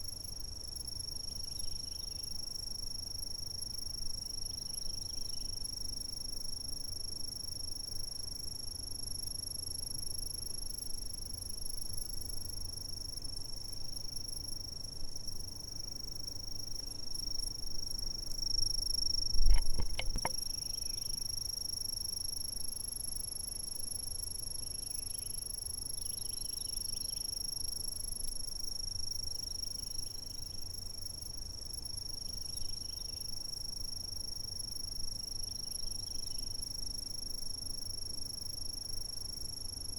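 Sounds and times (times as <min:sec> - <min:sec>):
high-pitched insect trill: 0:00.0 - 0:39.9
low thump with clicks: 0:19.4 - 0:20.4.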